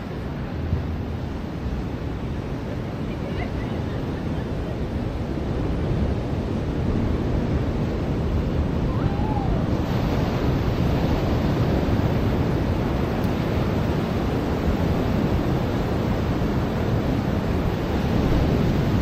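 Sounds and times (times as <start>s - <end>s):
ocean surf washing onto beach: 0.0s - 19.0s.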